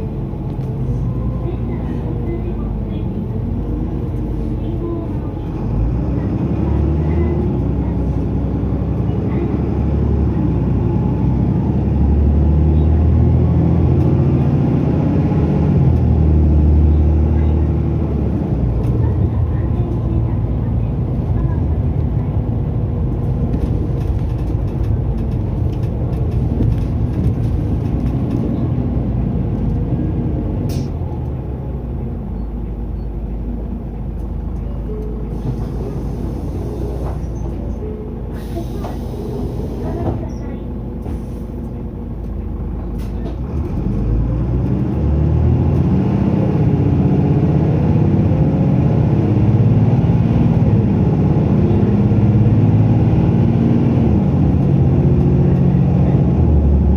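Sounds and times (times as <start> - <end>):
bus diesel engine running: 0.0 - 56.9
air brake hisses: 38.3 - 40.0.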